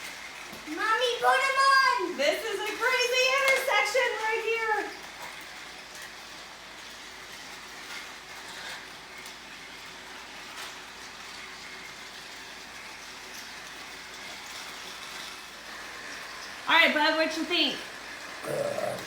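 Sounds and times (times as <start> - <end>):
light clicks on plastic track: 0.0 - 16.6
toy train motor whir: 0.0 - 19.0.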